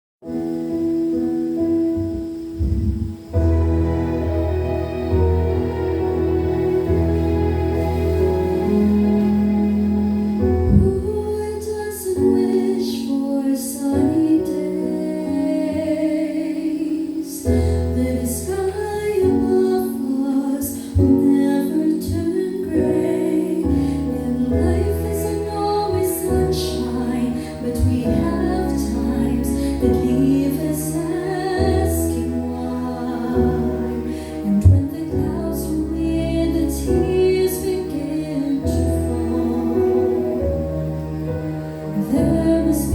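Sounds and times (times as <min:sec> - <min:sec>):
instrumental accompaniment with bass: 0:00.3 - 0:12.5, 0:21.0 - 0:42.9
woman singing with vibrato: 0:10.7 - 0:40.4, 0:42.0 - 0:42.9.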